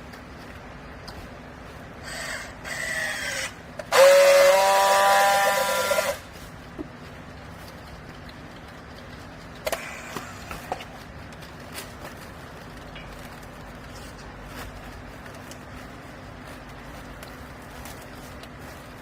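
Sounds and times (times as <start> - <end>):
hydraulic power unit humming: 0.0 - 19.0.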